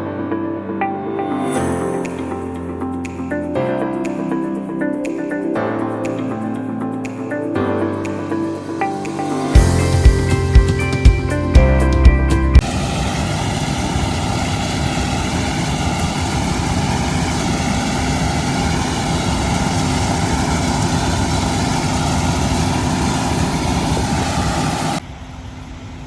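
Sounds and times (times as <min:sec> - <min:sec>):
drone propellers humming: 0:12.6 - 0:26.0.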